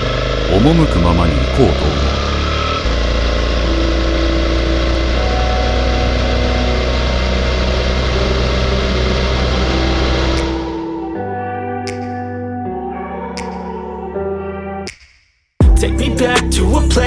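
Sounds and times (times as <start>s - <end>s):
motorcycle engine running: 0.0s - 10.9s, 15.6s - 17.0s.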